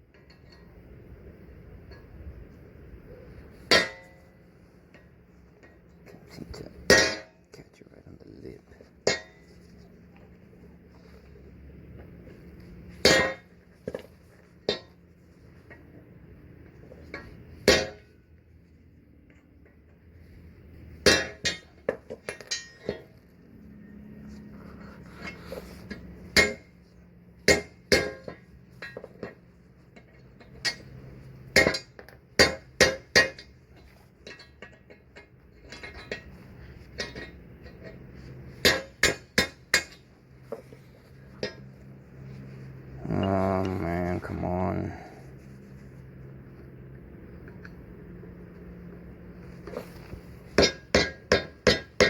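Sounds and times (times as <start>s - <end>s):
hammer striking steel: 3.7s - 4.3s, 6.8s - 7.4s, 13.0s - 14.0s, 17.6s - 18.1s, 21.0s - 23.0s, 25.2s - 26.8s, 27.4s - 29.3s, 30.5s - 33.5s, 38.6s - 40.1s, 50.5s - 52.0s.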